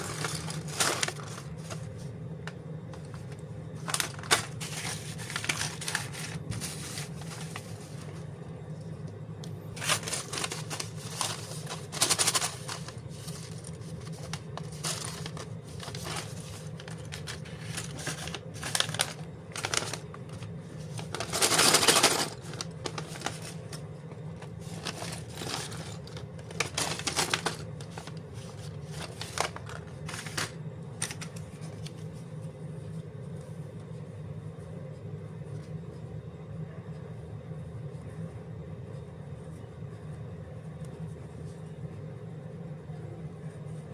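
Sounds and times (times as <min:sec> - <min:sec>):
small plastic pieces rattling: 0:00.0 - 0:01.9, 0:03.8 - 0:07.4, 0:09.8 - 0:23.6, 0:24.6 - 0:31.3
plastic bags crinkling: 0:00.0 - 0:02.1, 0:03.0 - 0:08.3, 0:09.8 - 0:31.9
steady low hum: 0:00.0 - 0:43.9.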